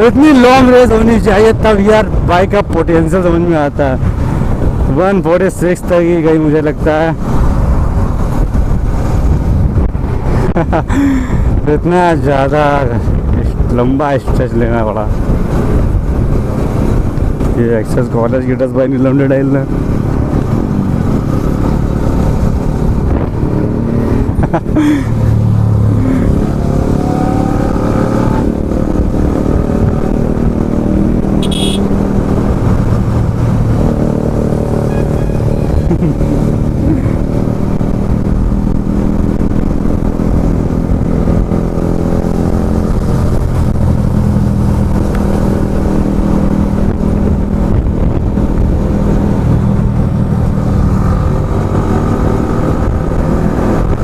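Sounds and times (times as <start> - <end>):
motorcycle engine running: 28.9 - 54.0.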